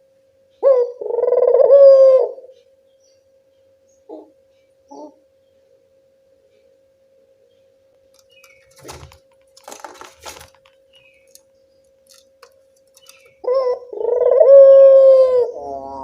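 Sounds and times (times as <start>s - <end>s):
faint steady hum: 0.0s - 16.0s
faint crackling clicks: 7.9s - 13.4s.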